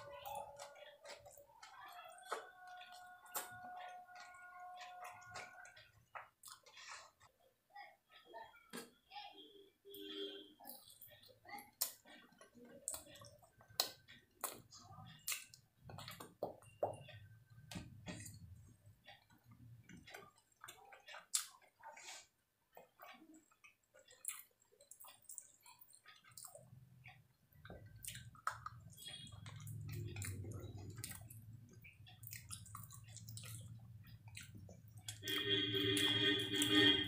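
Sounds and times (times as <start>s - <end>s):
wet chewing with lip smacks: 20.1s - 26.8s, 27.5s - 36.7s.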